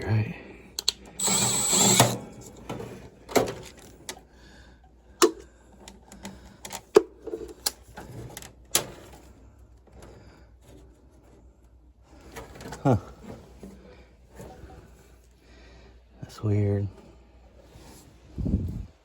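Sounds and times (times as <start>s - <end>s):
sharp clicks and metal taps: 0.8s - 2.2s.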